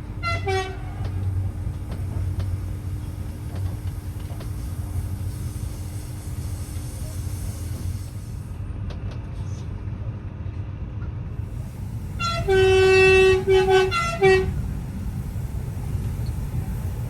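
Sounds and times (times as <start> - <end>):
train rumbling: 0.0 - 17.0
train horn blasts: 0.2 - 1.2, 12.1 - 14.6.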